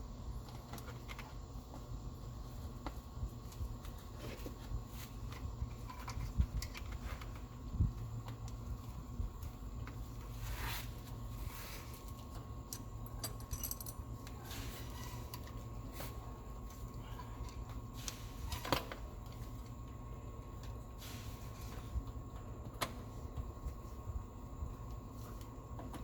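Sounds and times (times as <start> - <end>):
steady low hum: 0.0 - 26.0
clicks and rustles of hand work: 0.3 - 20.8.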